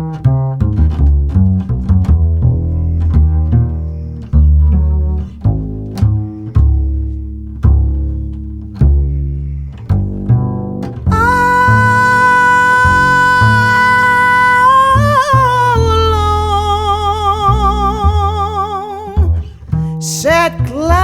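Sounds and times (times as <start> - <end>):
plucked double bass solo: 0.0 - 21.0
long held note: 11.1 - 19.0.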